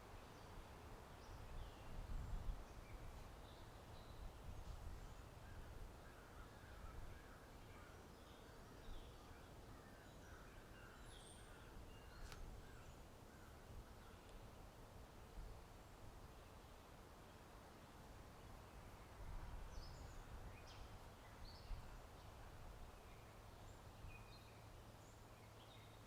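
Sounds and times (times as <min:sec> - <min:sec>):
low wind rumble: 0:00.7 - 0:06.0.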